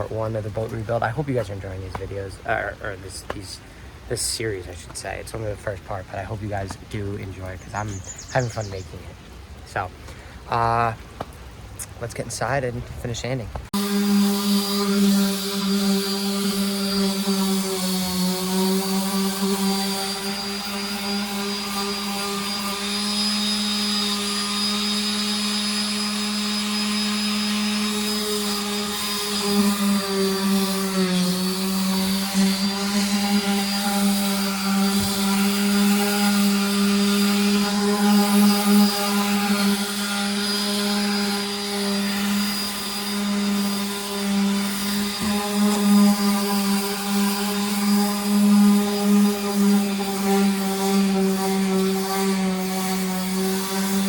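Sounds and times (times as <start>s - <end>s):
electric sander running: 13.7s - 54.0s.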